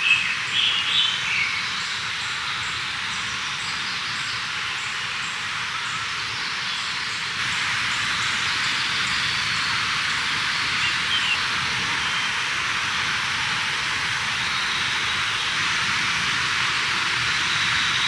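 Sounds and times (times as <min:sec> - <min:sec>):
mountain stream rushing: 0:07.4 - 0:18.0.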